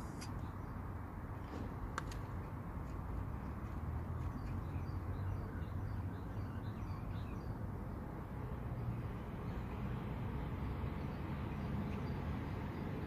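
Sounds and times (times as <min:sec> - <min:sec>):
small birds chirping: 0:03.3 - 0:07.7.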